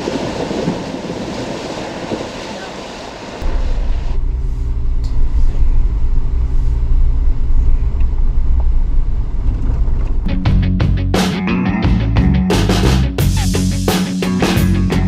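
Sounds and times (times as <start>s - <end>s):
car engine and road rumble: 3.2s - 11.2s
music: 10.3s - 15.0s.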